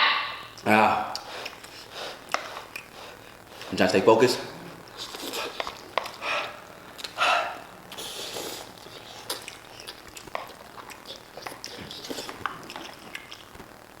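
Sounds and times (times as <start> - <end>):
sharp sniffing breaths: 1.2 - 3.8, 4.6 - 9.3
person slurping noodles: 4.4 - 9.9.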